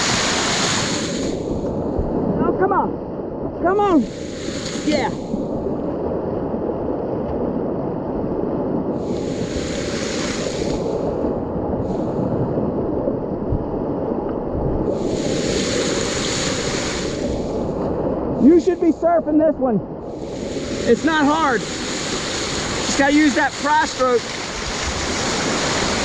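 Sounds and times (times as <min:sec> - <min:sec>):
hissing water splashes: 0:00.0 - 0:01.8, 0:03.8 - 0:05.6, 0:08.9 - 0:12.6, 0:14.8 - 0:19.1, 0:20.0 - 0:26.0
whitewater rushing: 0:00.0 - 0:02.9, 0:03.6 - 0:05.4, 0:09.0 - 0:12.4, 0:14.9 - 0:26.0.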